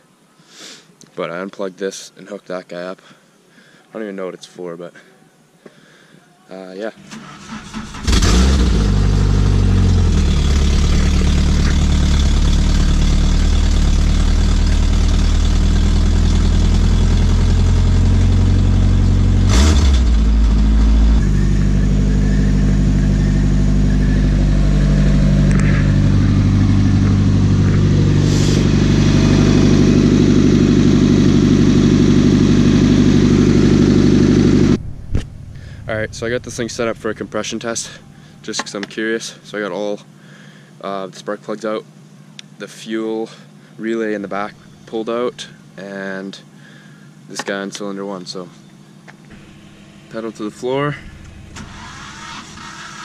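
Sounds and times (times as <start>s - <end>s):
car engine starting: 7.0s - 39.4s, 48.7s - 53.0s
car engine idling loudly: 8.0s - 38.4s, 48.9s - 53.0s.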